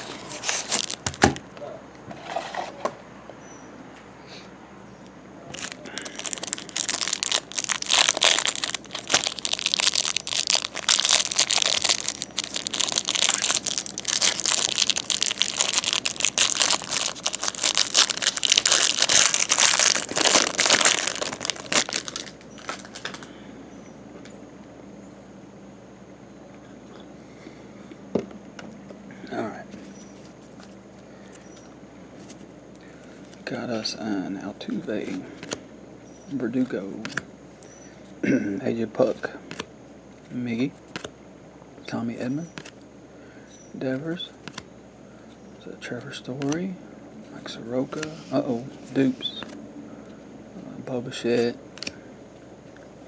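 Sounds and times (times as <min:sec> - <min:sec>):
wrapping and cardboard crinkling and tearing: 0:00.0 - 0:01.4, 0:05.5 - 0:23.2.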